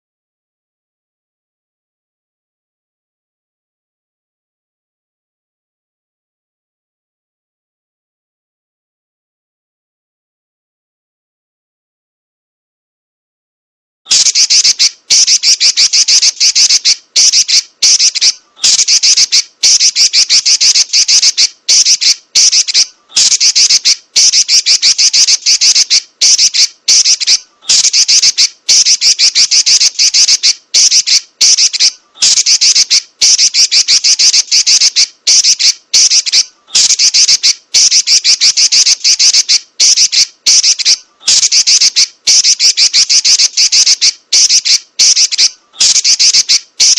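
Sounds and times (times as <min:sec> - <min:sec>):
bird chattering trills: 0:14.1 - 0:46.9.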